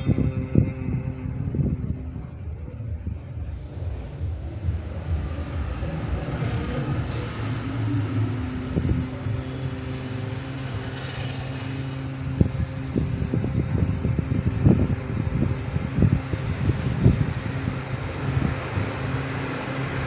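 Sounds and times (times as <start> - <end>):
engine hum: 0.0 - 20.0.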